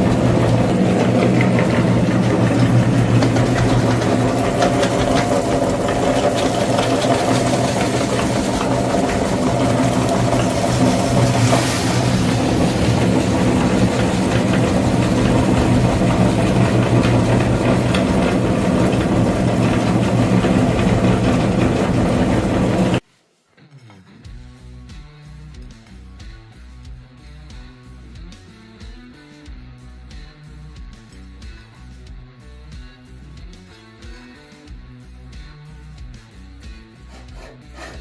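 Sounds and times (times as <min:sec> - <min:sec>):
tractor engine idling: 0:00.0 - 0:23.0.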